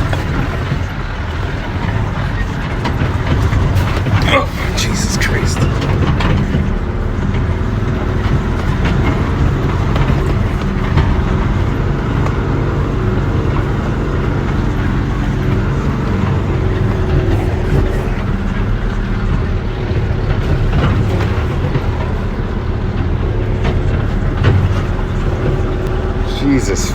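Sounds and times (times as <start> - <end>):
diesel engine under heavy load: 0.0 - 26.9.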